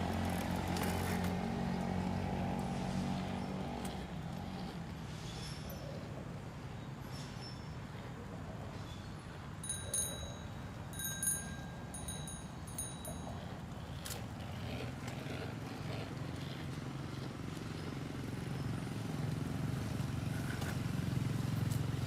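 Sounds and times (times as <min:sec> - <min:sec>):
bicycle bell ringing: 0:09.6 - 0:13.7.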